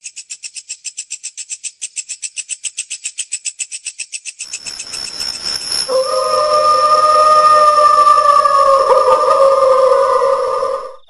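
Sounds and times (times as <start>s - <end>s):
held eerie tone: 4.5s - 11.0s
rapid high-pitched chirping: 4.5s - 11.0s.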